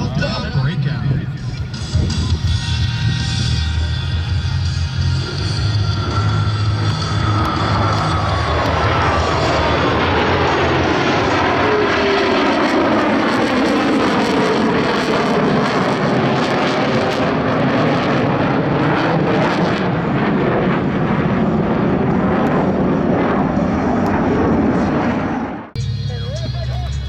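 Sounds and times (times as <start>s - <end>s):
jet roar with crackle: 4.8s - 25.8s.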